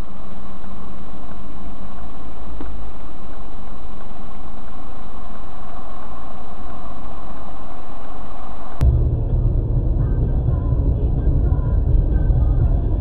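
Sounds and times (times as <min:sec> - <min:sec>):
car engine idling: 0:05.3 - 0:13.0.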